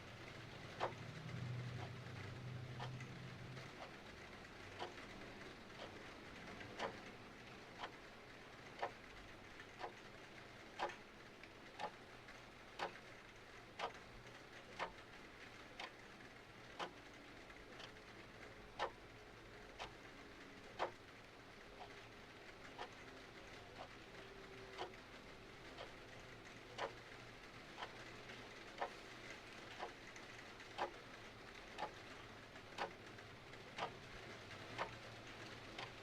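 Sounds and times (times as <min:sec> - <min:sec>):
clock ticking: 0:00.6 - 0:19.1, 0:19.7 - 0:21.2, 0:21.8 - 0:36.0.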